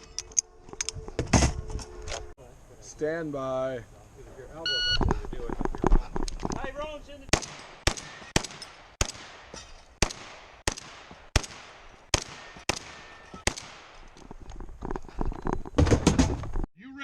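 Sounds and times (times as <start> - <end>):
shotgun shots: 7.3 - 14.0.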